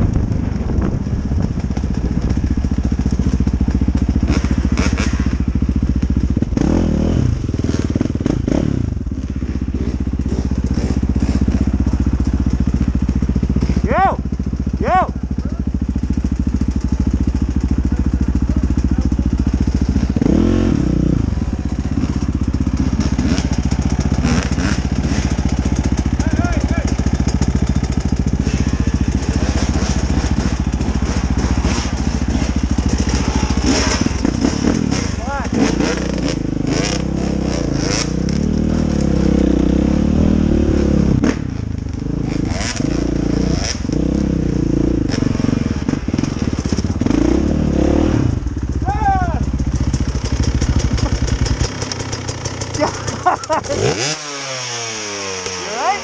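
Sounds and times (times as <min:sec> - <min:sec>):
dirt bike engine revving: 0:00.0 - 0:56.0
dirt bike engine running: 0:00.0 - 0:56.0
knocks and scrapes: 0:27.8 - 0:35.3.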